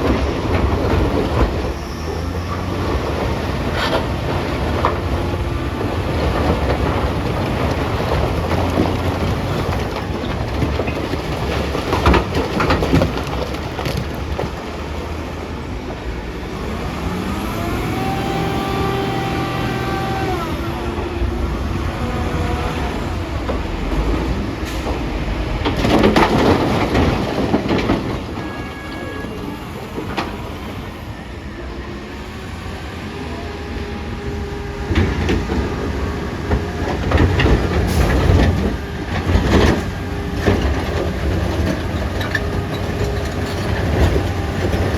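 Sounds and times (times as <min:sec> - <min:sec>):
diesel engine under load: 0:00.0 - 0:44.9
rocks crashing into truck: 0:02.7 - 0:15.2, 0:23.5 - 0:28.7.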